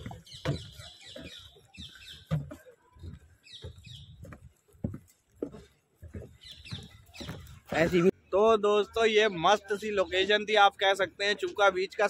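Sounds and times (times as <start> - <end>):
low thumps and knocks: 0.0 - 8.0
birds chirping: 0.0 - 10.7.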